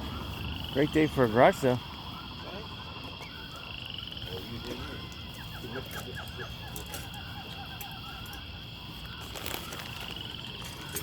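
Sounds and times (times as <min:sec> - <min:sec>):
steady high-pitched whine: 0:00.0 - 0:11.0
animal chirping calls: 0:02.1 - 0:10.2.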